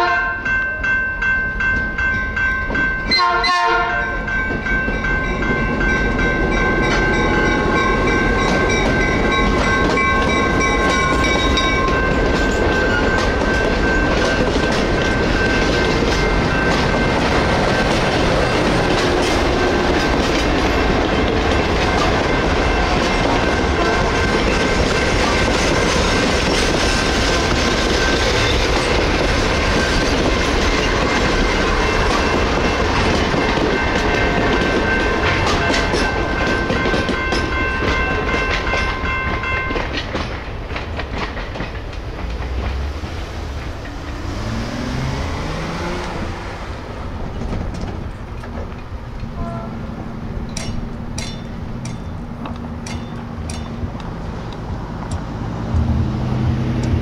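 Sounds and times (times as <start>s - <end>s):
crossing bells ringing: 0.0s - 40.7s, 42.5s - 57.0s
train wheels on rails: 0.3s - 57.0s.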